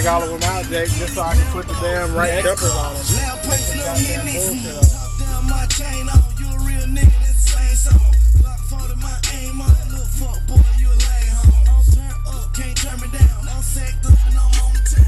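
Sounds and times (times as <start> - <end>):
rap music through car subwoofers: 0.0 - 15.0
hard kick drums: 4.8 - 8.7, 9.7 - 12.2, 13.2 - 15.0.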